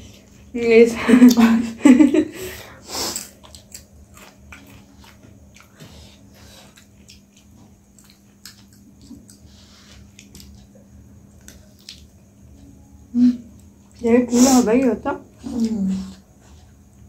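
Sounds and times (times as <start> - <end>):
chewing and mouth smacks: 3.2 - 10.7, 11.4 - 12.2.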